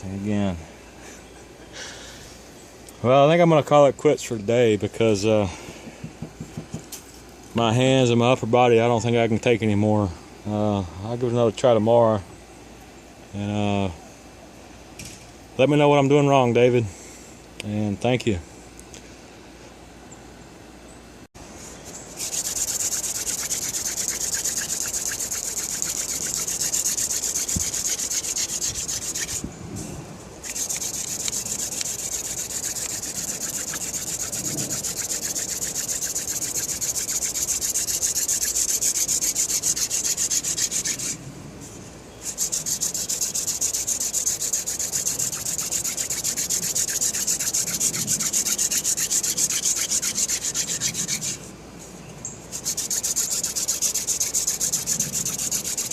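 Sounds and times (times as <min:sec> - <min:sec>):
wooden spindle grinding on wood: 0:22.2 - 0:29.5, 0:30.4 - 0:41.2, 0:42.2 - 0:51.5, 0:52.5 - 0:55.9.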